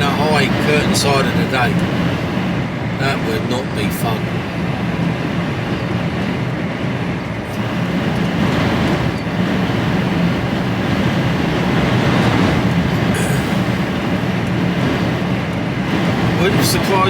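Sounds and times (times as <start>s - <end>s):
lorry engine drone: 0.0s - 17.0s
road and wind noise: 0.0s - 17.0s.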